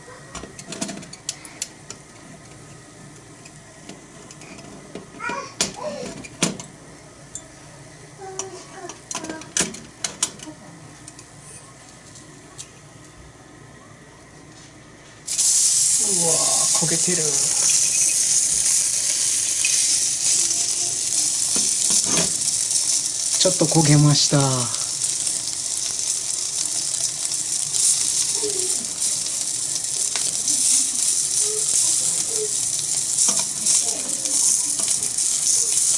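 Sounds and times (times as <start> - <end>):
faint steady hiss: 15.3 - 35.9
fire crackles: 15.3 - 35.9
metal utensil clinking on griddle: 16.8 - 23.8, 27.8 - 35.9.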